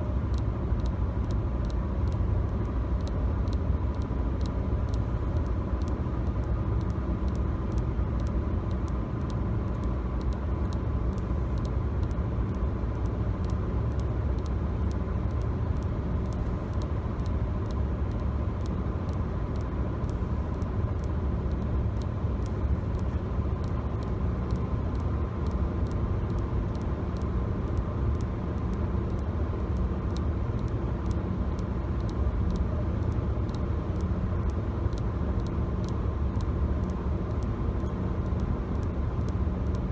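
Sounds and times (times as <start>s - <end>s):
faint steady hum: 0.0s - 39.9s
car cabin road rumble: 0.1s - 26.0s.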